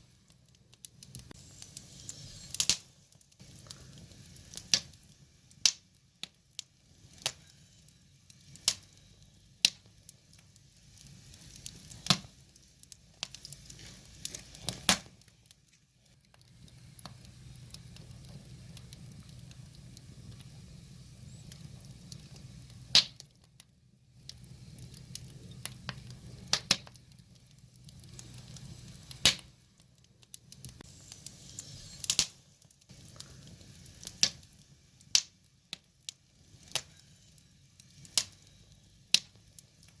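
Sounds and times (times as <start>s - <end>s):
rush of flame: 0.0s - 23.4s, 24.1s - 40.0s
wood fire crackling: 0.0s - 40.0s.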